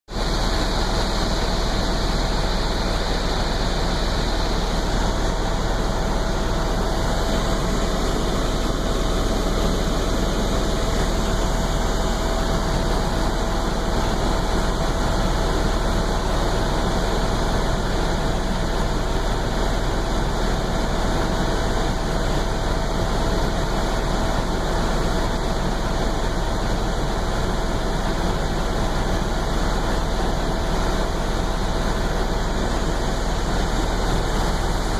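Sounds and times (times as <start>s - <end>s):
helicopter engine and rotor: 0.1s - 34.9s.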